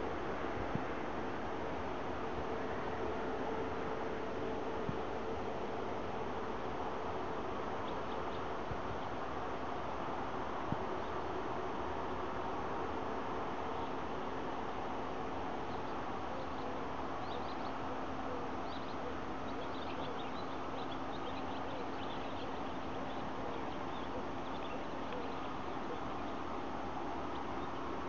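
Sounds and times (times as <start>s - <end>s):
steady background hum: 0.0s - 28.0s
small birds chirping: 7.6s - 9.3s, 15.4s - 28.0s.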